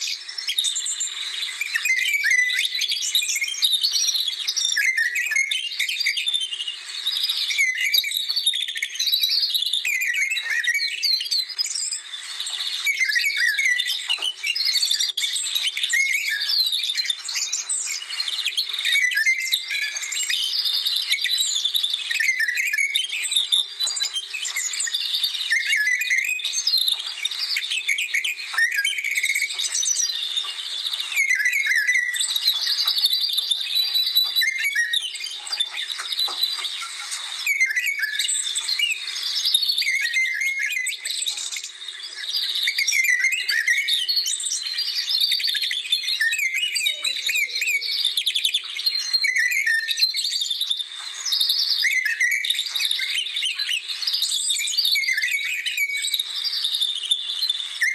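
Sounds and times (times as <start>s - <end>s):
birds chirping and trilling: 0.0s - 57.9s.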